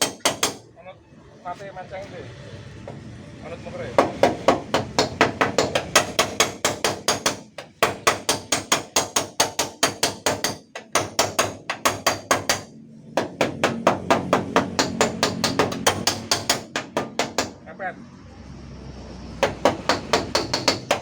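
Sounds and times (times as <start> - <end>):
hammer tapping sheet metal: 0.0 - 0.6, 4.0 - 17.6, 19.4 - 21.0.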